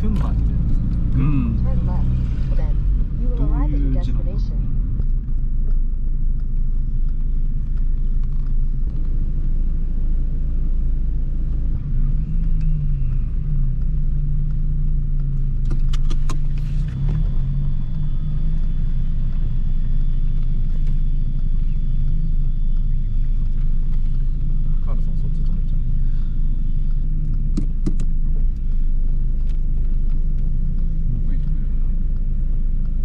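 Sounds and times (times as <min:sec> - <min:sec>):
car engine running: 0:00.0 - 0:33.0
road rumble in cabin: 0:00.0 - 0:33.0
sharp clicks: 0:25.4 - 0:33.0.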